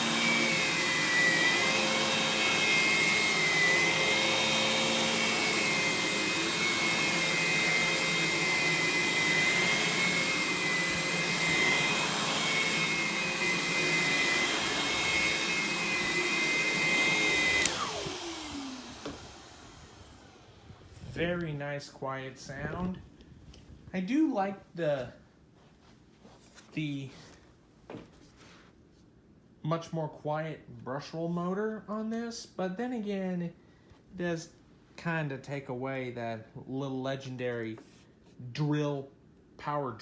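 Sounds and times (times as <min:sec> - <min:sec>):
vacuum motors spinning down: 0:00.0 - 0:21.1
vacuum cleaner whining: 0:00.0 - 0:21.8.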